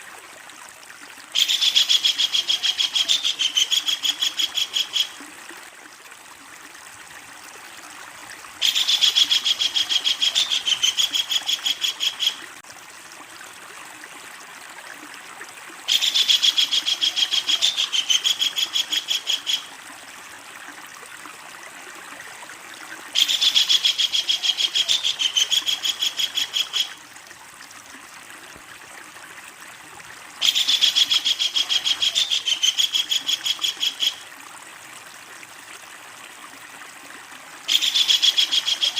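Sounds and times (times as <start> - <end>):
kingfisher chattering call: 8.6 - 12.4, 30.4 - 34.2.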